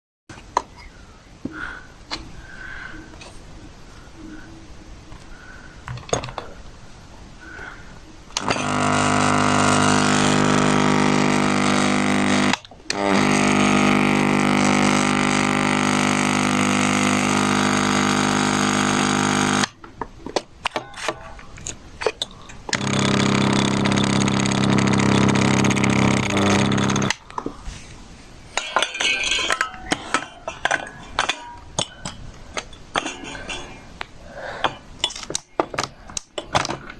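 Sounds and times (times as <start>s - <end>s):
electrical ballast buzzing: 8.3s - 19.9s, 20.6s - 27.4s.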